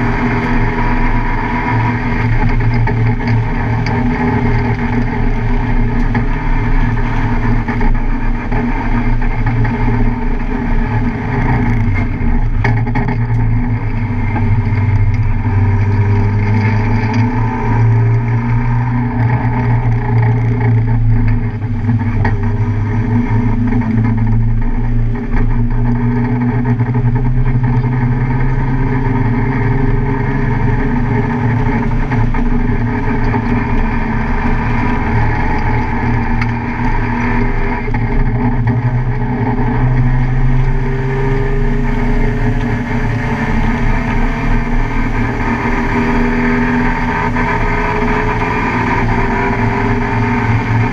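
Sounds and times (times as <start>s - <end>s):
car engine running hard: 0.0s - 50.9s.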